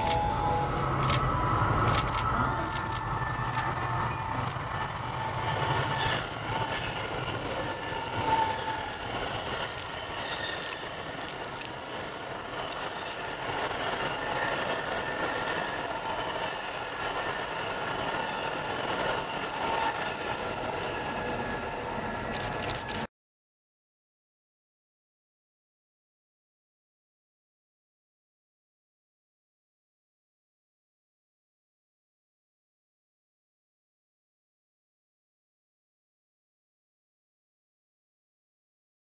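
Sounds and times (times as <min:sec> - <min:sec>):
high wheel squeal: 0:00.0 - 0:23.1
train rumbling on track: 0:00.0 - 0:23.1.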